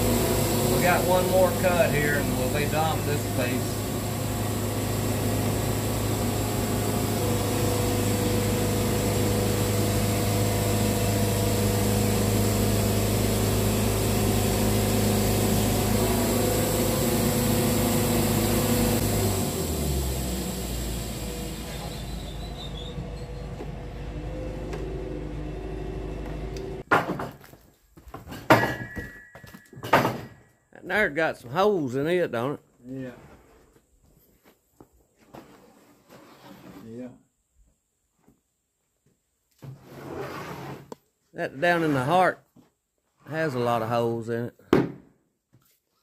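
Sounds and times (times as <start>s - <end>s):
sawmill engine running: 0.0s - 26.8s.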